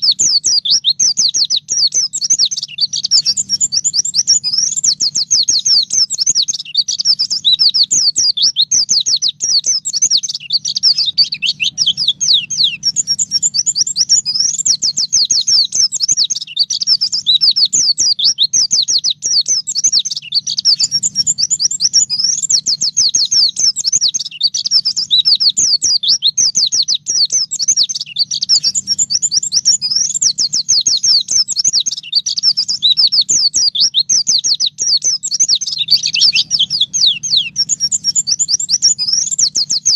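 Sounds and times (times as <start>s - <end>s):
bird chattering song: 0.0s - 39.9s
faint low hum: 3.0s - 16.0s, 20.4s - 23.2s, 35.6s - 39.9s.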